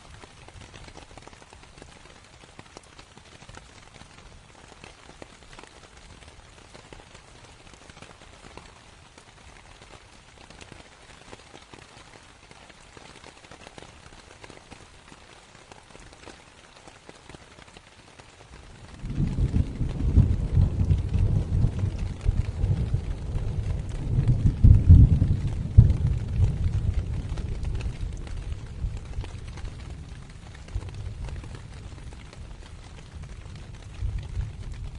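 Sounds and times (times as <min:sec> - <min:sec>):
rain on canvas: 0:00.0 - 0:34.9
thunder rumbling: 0:18.8 - 0:34.9.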